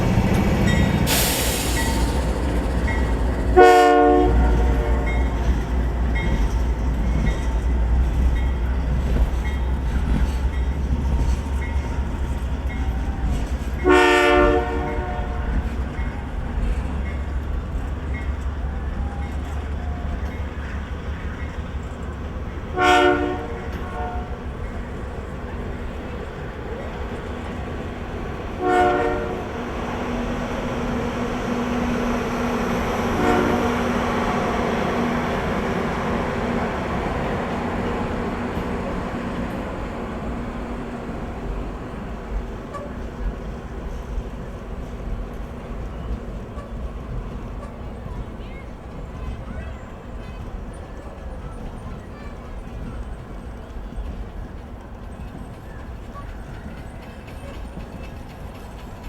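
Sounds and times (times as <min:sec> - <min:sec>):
train rumbling: 0:00.0 - 0:59.0
locomotive air horn blasts: 0:03.5 - 0:05.5, 0:13.8 - 0:15.8, 0:22.7 - 0:24.5, 0:28.5 - 0:29.8, 0:33.0 - 0:34.6.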